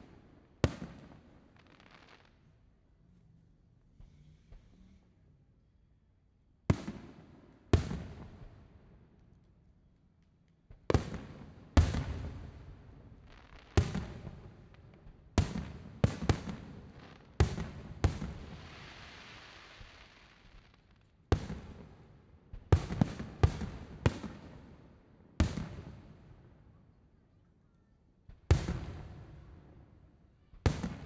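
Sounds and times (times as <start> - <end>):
fireworks booming: 28.5 - 29.7.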